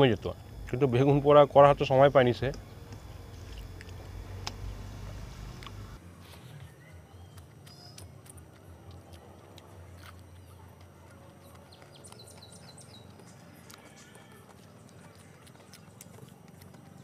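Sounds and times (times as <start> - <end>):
birds chirping: 0.0 - 9.5, 10.2 - 17.0
chewing and wet lip smacks: 2.9 - 4.6, 5.5 - 17.0.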